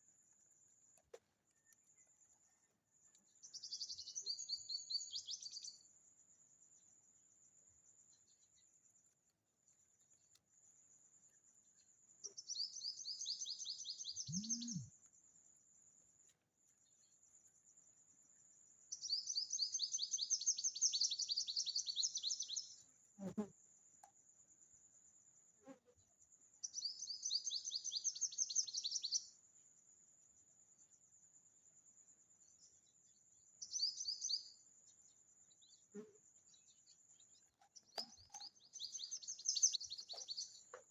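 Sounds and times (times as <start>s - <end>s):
songbird singing: 0.3s - 5.9s, 7.8s - 15.2s, 16.2s - 24.2s, 26.6s - 29.4s, 32.2s - 40.9s
thin high insect buzz: 13.1s - 15.0s, 19.8s - 23.8s, 25.5s - 26.8s, 35.5s - 36.9s.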